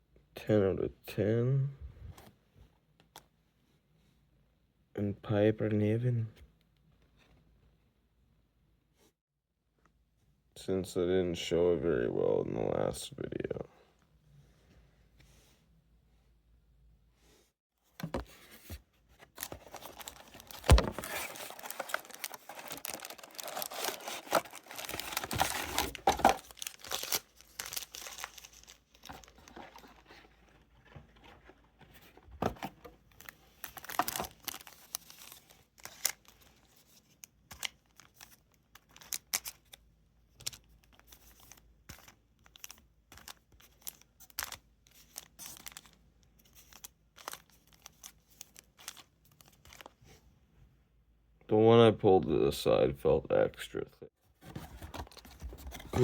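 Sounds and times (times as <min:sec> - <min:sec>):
wrappers crinkling and tearing: 0:19.4 - 0:30.2, 0:33.2 - 0:36.4.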